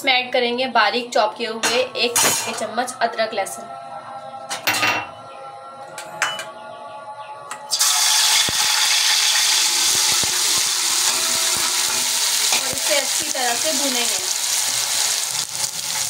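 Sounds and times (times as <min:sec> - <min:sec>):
loud sizzle of frying: 0:07.7 - 0:16.0.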